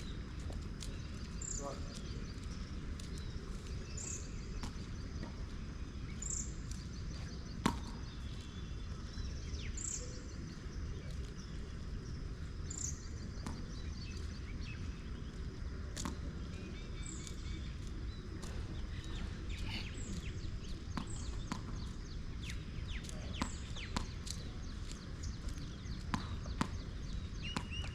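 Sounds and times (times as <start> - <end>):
bird calling: 18.4 - 21.4.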